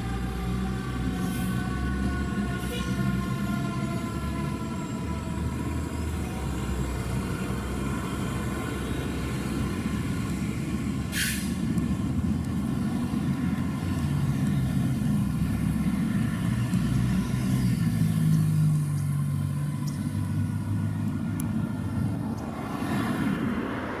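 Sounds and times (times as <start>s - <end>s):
diesel engine pulling away: 0.0s - 24.0s
air brake hiss: 11.1s - 11.7s.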